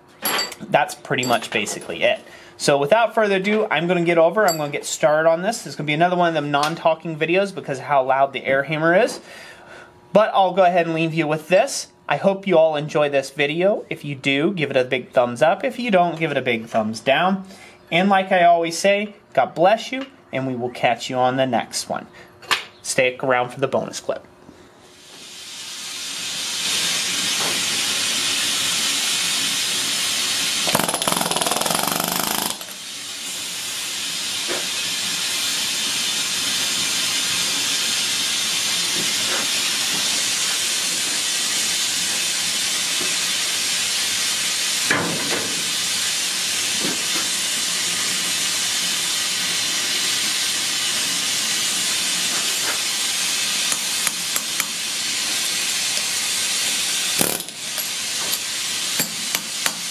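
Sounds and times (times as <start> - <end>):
pneumatic air hammer running: 25.4 - 59.9.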